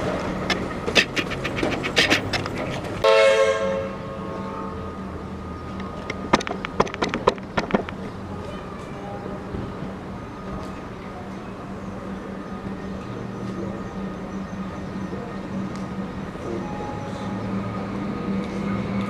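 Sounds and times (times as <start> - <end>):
train wheels clacking over rail joints: 0.0 - 3.1, 5.8 - 8.1
train horn blast: 3.0 - 5.2.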